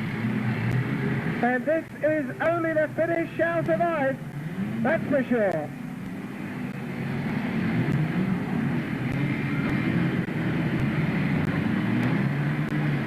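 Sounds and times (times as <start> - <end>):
racing car engines: 0.0 - 13.0.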